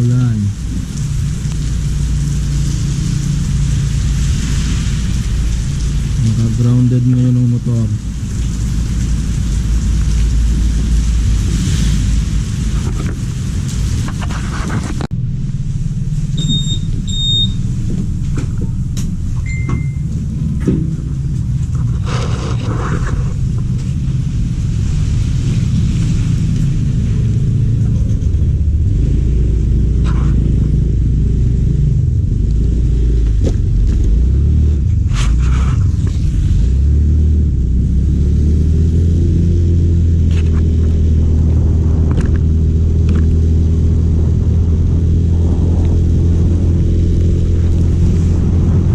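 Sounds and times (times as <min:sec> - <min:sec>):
vehicle engine rumble: 0:00.0 - 0:48.9
short electronic beeps: 0:16.4 - 0:17.6, 0:19.4 - 0:20.1.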